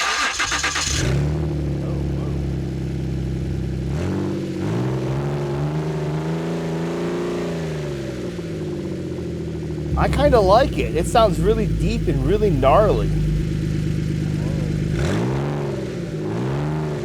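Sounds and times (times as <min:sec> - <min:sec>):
car engine droning: 0:09.7 - 0:17.0.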